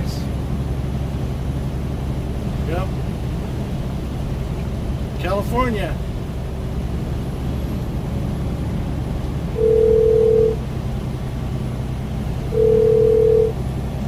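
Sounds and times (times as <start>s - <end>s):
low truck engine drone: 0.0s - 14.0s
telephone ringback tone: 9.6s - 10.6s, 12.5s - 13.6s.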